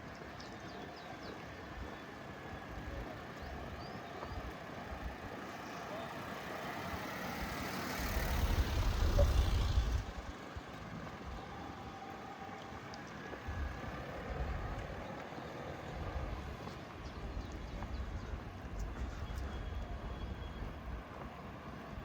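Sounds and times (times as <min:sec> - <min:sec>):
street traffic: 0:00.0 - 0:22.0
vehicle passing close by: 0:05.1 - 0:11.5.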